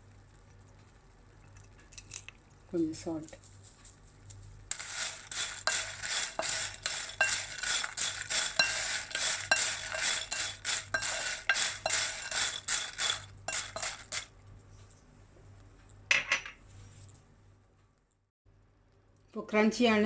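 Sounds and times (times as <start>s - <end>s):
spoon clinking against metal pan: 5.7s - 14.1s.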